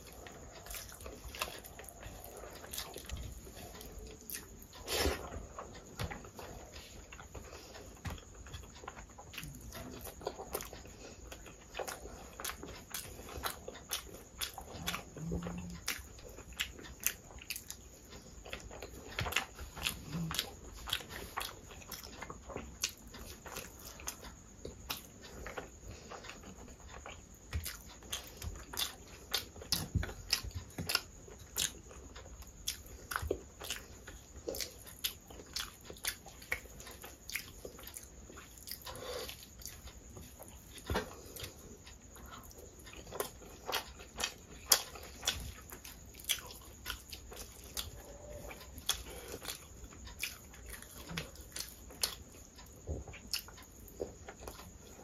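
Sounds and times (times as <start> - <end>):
wet chewing with mouth clicks: 0.0 - 55.0.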